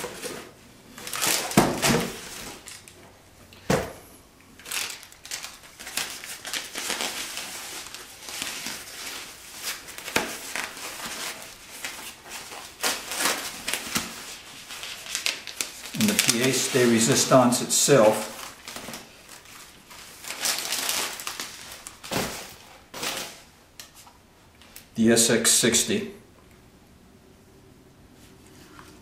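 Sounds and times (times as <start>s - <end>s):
packaging rustling and crinkling: 0.0s - 3.0s, 4.6s - 24.1s.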